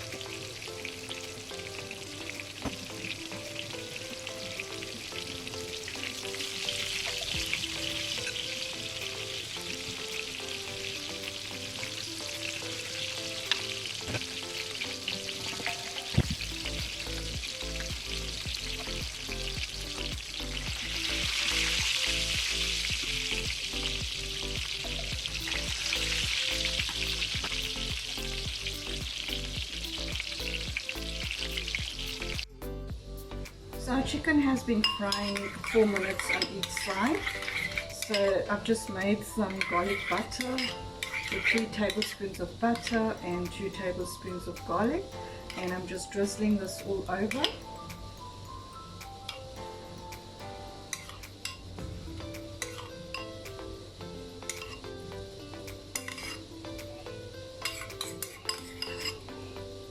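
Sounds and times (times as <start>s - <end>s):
chicken frying in oil: 0.0s - 32.5s, 33.9s - 47.7s
soft background music: 0.0s - 59.9s
bass line: 16.2s - 34.0s.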